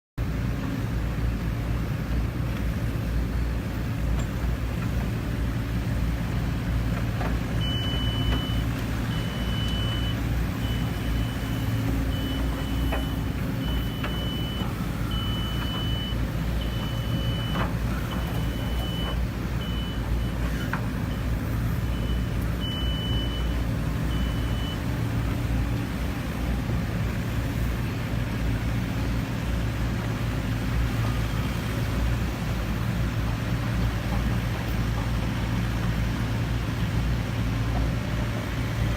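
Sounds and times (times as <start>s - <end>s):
heavy machine engine running: 0.2s - 38.9s
reversing alarm beeping: 7.6s - 24.9s.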